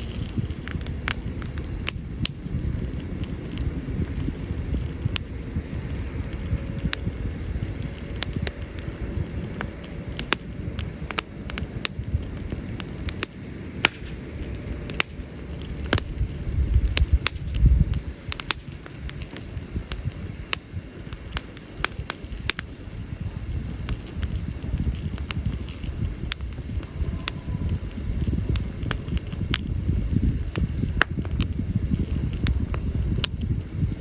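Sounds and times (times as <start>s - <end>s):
campfire crackling and popping: 0.0s - 34.0s
low fire rumble: 0.0s - 34.0s.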